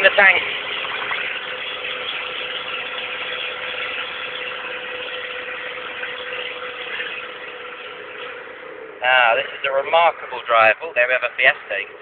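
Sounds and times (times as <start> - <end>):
unsilenced car engine drone: 0.0 - 12.0.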